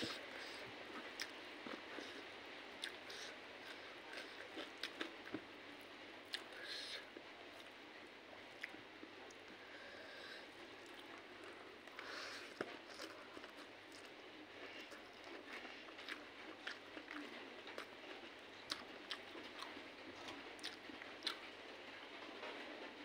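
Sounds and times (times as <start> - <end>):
person chewing food: 0.0 - 5.5, 6.3 - 7.8, 8.6 - 21.5.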